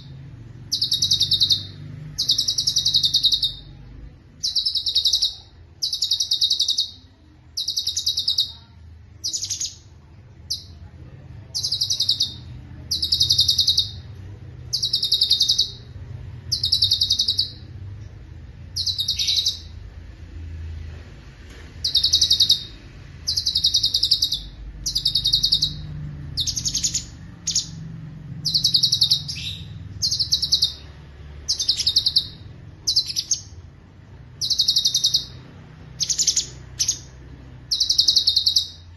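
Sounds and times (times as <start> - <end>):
bulbul singing trilled phrases: 0.0 - 10.8, 11.5 - 17.8, 18.7 - 19.8, 21.8 - 27.8, 28.4 - 33.6, 34.4 - 35.4, 36.0 - 38.9
low hum: 8.6 - 38.9.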